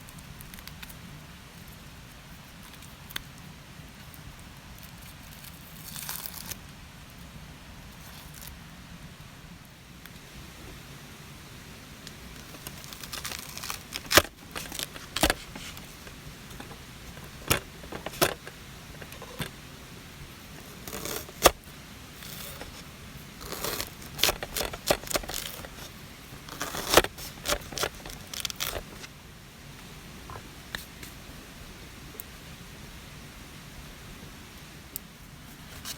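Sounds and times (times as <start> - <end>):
rustling and crinkling: 0.0 - 8.6, 12.0 - 29.2, 35.3 - 35.9
background hiss: 0.0 - 35.9
objects clicking and clinking: 12.4 - 19.6, 23.4 - 29.1.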